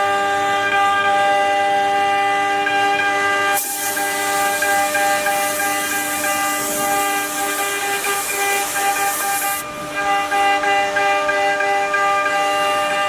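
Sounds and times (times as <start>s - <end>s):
high hiss: 3.6s - 9.6s.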